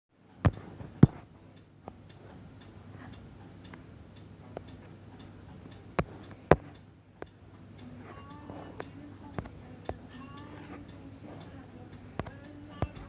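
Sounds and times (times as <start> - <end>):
sharp taps: 0.5 - 1.2
light regular ticks: 0.5 - 13.0.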